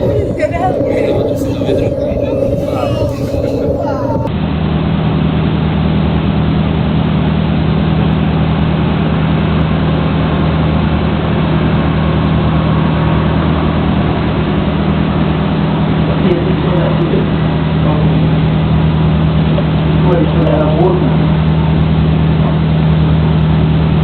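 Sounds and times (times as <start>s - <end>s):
motor engine humming: 0.0s - 4.4s
noisy rushing background: 0.0s - 5.0s.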